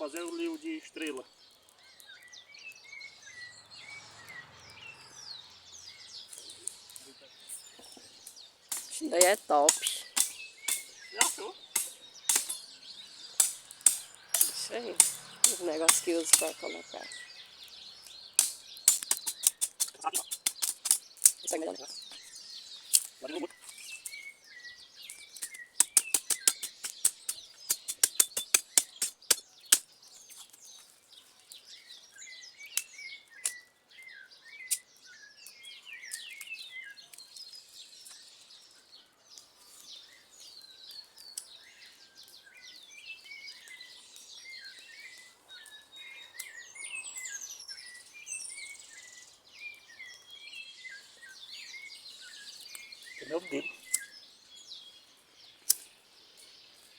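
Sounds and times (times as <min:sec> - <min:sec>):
small birds chirping: 0:00.0 - 0:56.9
sharp clicks or snaps: 0:08.2 - 0:12.7, 0:13.4 - 0:16.6, 0:18.0 - 0:21.6, 0:22.9 - 0:23.2, 0:25.1 - 0:29.9, 0:32.8 - 0:33.6, 0:55.7 - 0:55.9.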